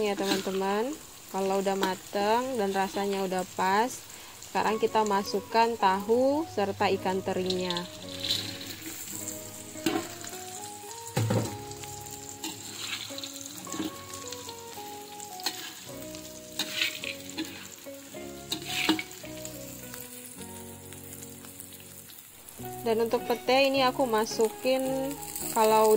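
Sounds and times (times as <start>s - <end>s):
metal spatula scraping pan: 0.0s - 0.6s, 7.8s - 10.2s, 12.4s - 14.1s, 15.4s - 15.9s, 16.5s - 17.8s, 18.4s - 19.2s
food sizzling in oil: 0.0s - 25.9s
soft background music: 0.0s - 25.9s.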